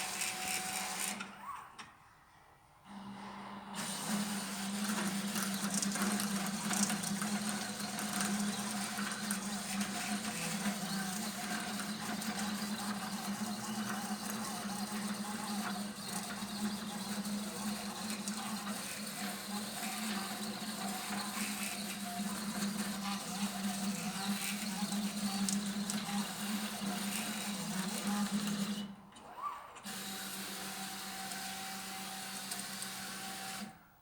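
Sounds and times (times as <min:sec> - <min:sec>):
stepper motors buzzing: 0:03.8 - 0:28.4.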